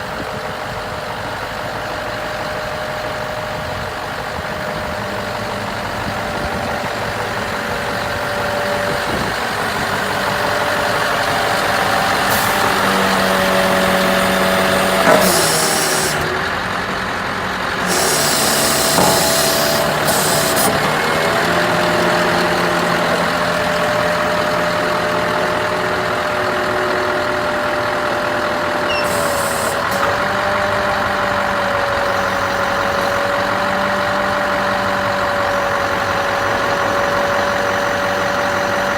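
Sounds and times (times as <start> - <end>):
truck diesel engine running: 0.0 - 38.9
compressed air hiss: 14.8 - 16.2, 17.8 - 20.7, 29.0 - 29.9.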